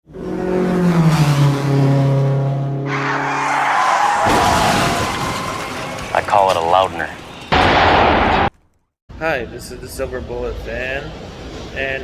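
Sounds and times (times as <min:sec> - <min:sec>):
tyres skidding: 0:02.9 - 0:07.6
heavy hit: 0:07.4 - 0:08.5.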